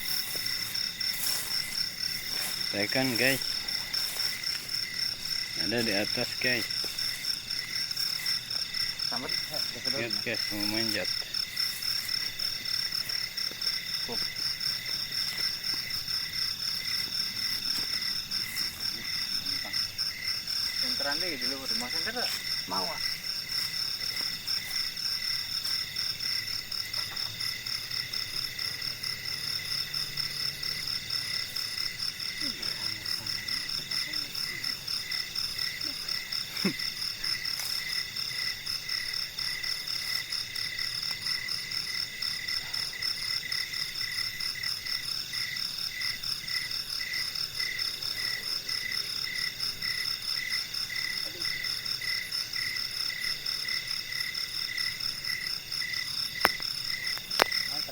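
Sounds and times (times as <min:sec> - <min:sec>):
rapidly repeating frog call: 0:00.0 - 0:45.6
insects trilling: 0:00.0 - 0:57.9.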